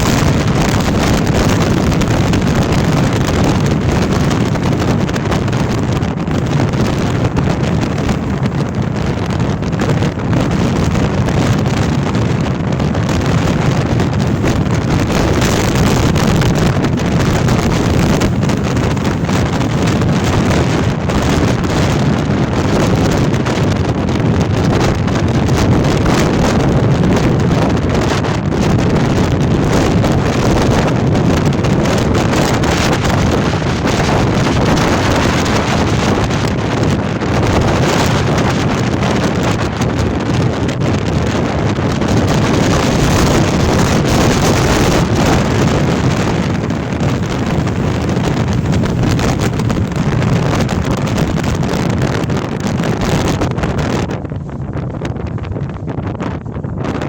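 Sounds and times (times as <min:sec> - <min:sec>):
strong wind blasting microphone: 0:00.0 - 0:57.0.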